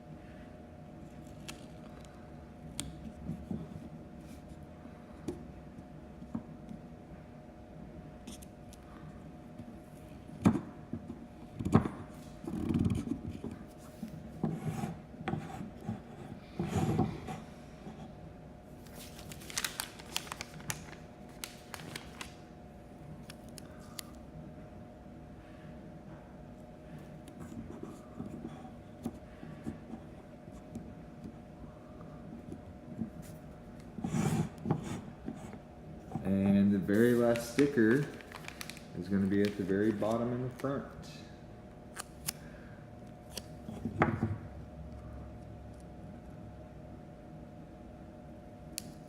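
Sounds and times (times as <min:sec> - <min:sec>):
sticker rustle: 0:18.9 - 0:22.4, 0:36.9 - 0:40.2
stickers scraping and clicking: 0:36.9 - 0:40.8.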